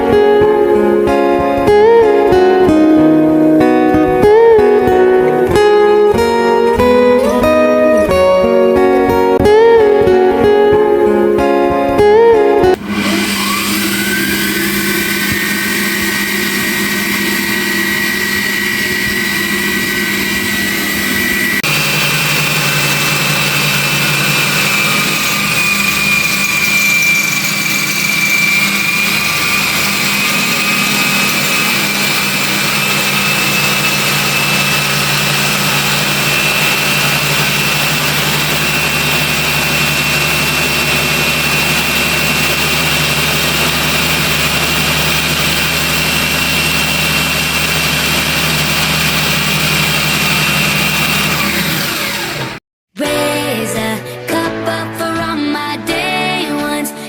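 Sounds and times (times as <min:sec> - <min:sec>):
lathe motor whining: 0:12.8 - 0:52.6.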